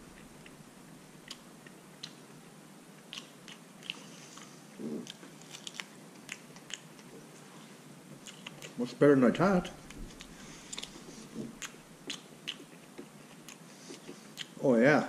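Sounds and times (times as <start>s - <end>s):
man chewing: 0.0s - 2.2s, 3.0s - 7.6s, 8.2s - 8.8s, 9.8s - 14.6s
mouth clicks and smacks: 1.2s - 2.2s, 3.0s - 7.1s, 9.9s - 14.6s.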